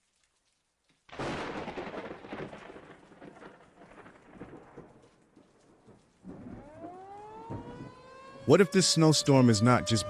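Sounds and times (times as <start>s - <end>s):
thunderclap and rumble: 1.1s - 8.0s.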